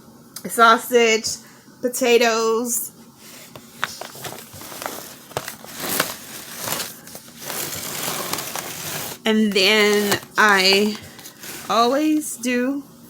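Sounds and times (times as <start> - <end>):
wrapping crinkling and rustling: 3.2 - 12.3.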